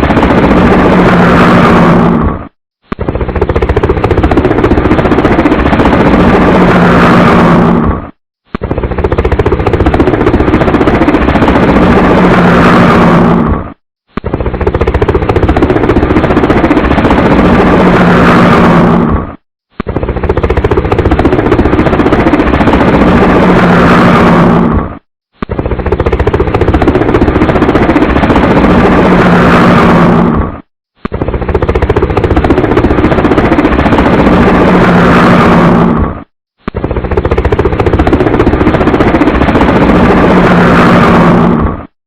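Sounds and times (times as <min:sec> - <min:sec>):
loud helicopter chopping: 0:00.0 - 0:42.0.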